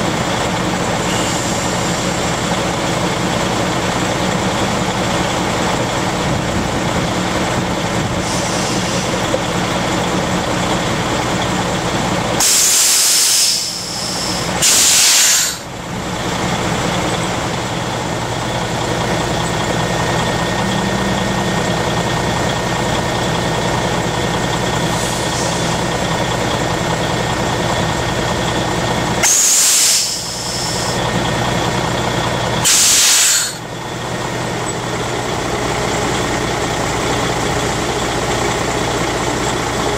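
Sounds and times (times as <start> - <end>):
diesel truck engine idling: 0.0 - 39.9
air brake releases: 1.0 - 2.4, 8.2 - 9.4, 12.4 - 15.7, 24.9 - 26.0, 29.2 - 31.0, 32.6 - 33.6.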